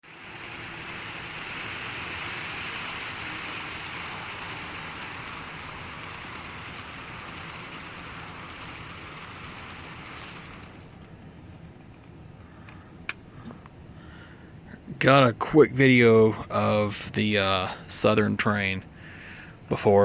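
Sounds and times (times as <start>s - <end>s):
model train running on track: 0.0s - 11.1s.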